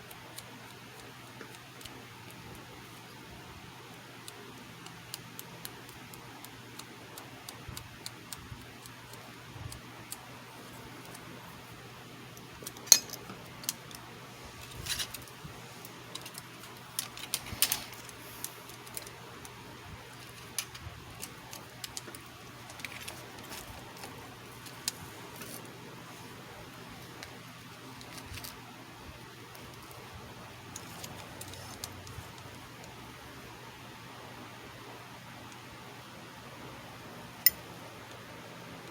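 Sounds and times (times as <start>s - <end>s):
low electrical hum: 0.0s - 38.9s
metallic clicks of hand tools: 12.8s - 13.2s.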